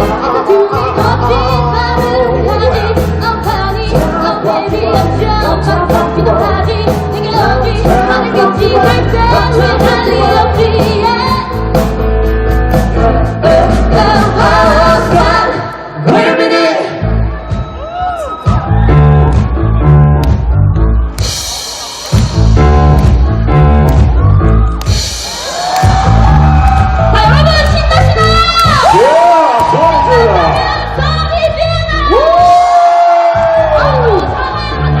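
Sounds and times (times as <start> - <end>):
person singing: 0.0 - 11.5
live band playing pop song: 0.0 - 35.0.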